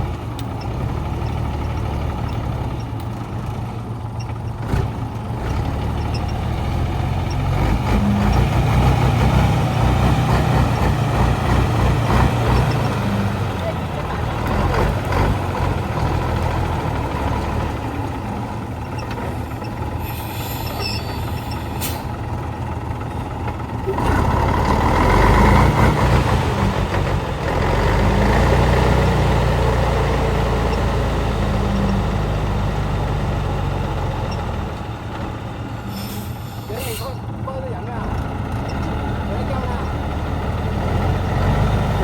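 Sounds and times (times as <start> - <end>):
heavy truck engine under load: 0.0 - 42.0
brief hiss: 20.0 - 22.0.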